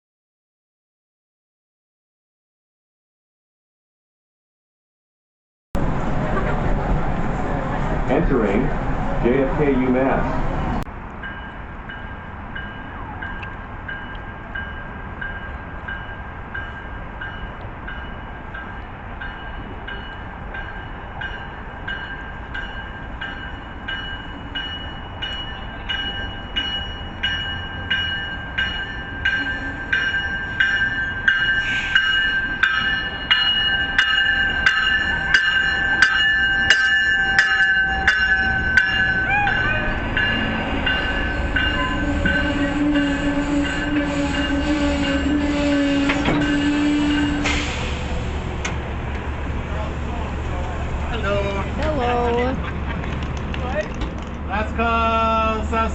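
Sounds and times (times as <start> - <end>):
low steady train tone: 5.8 - 55.9
locomotive bell ringing: 11.2 - 48.0.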